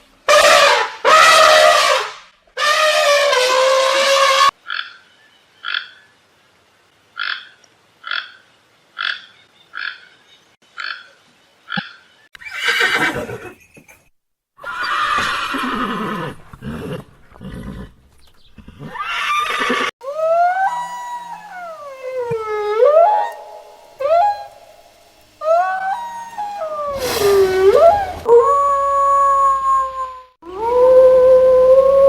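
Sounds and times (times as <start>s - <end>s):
frog croaking: 5.6s - 6.0s, 7.2s - 8.4s
horse neighing: 12.4s - 13.6s, 14.6s - 18.0s, 18.6s - 19.9s
sliding wavering tonal call: 20.0s - 32.0s.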